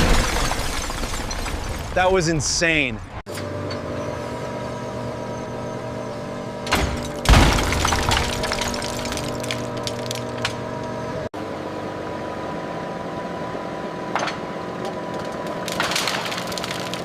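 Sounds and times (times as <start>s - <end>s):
heavy machinery running: 3.3s - 14.2s
sharp cracks: 15.4s - 17.0s.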